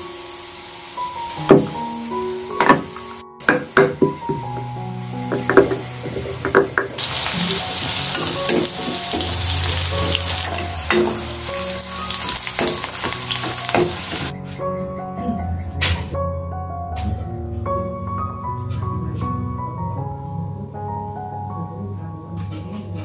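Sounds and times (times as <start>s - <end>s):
food sizzling in hot oil: 0.0s - 14.3s
soft background music: 0.0s - 23.0s.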